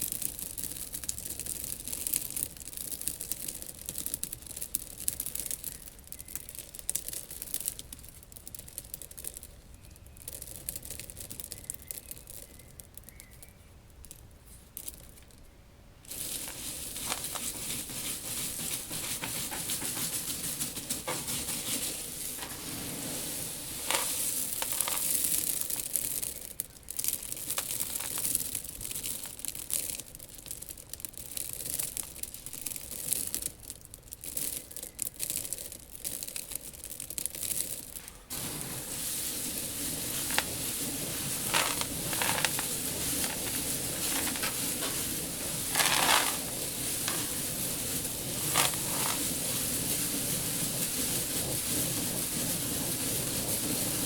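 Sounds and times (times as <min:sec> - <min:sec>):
dry seeds rustling: 0:00.0 - 0:54.0.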